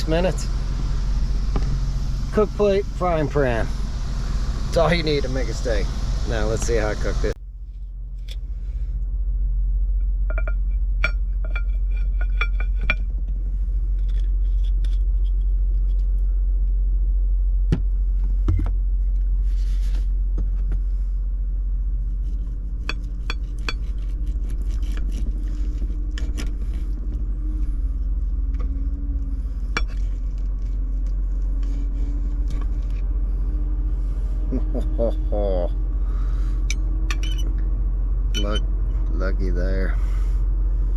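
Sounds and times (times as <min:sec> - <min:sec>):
truck idling rumble: 0:00.0 - 0:07.4, 0:25.3 - 0:40.9.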